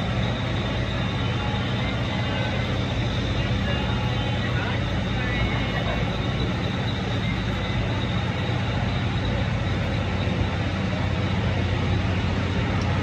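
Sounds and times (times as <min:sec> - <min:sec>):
train droning hum: 0:00.0 - 0:13.0.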